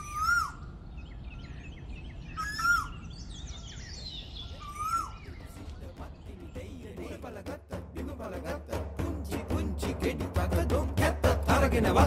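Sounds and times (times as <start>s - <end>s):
bird whistled call: 0.0s - 6.0s
high bird chirps: 0.0s - 7.0s.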